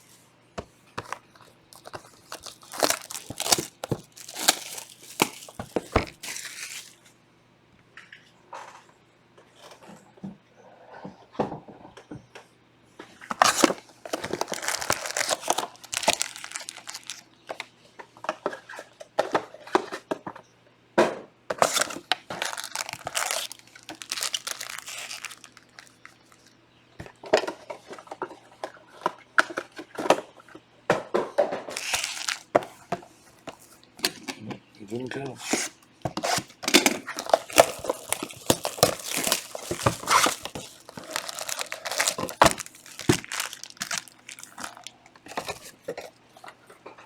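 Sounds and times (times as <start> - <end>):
plastic shrink wrap crinkling and tearing: 1.0 - 7.1, 13.3 - 17.2, 21.6 - 26.5, 31.7 - 32.7, 35.4 - 45.8.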